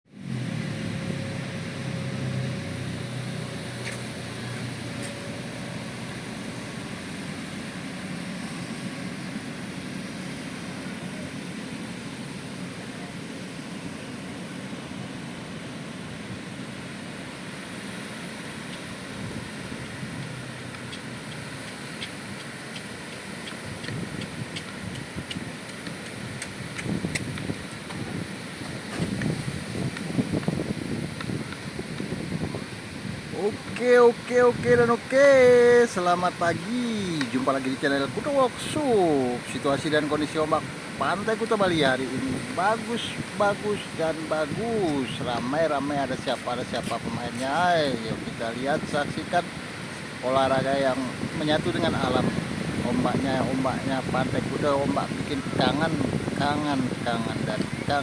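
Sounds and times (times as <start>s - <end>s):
wind: 0.0s - 58.0s
faint engine-like hum: 0.1s - 48.8s
surf roaring: 0.1s - 58.0s.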